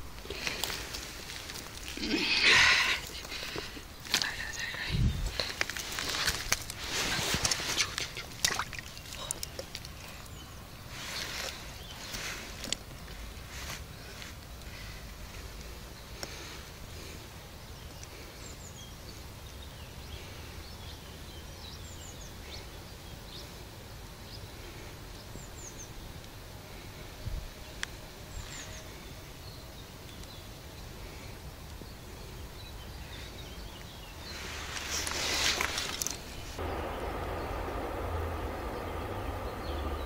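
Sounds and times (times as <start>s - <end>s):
outdoor background hiss: 0.0s - 40.0s
small birds chirping: 0.0s - 40.0s
rush of noise: 36.5s - 40.0s.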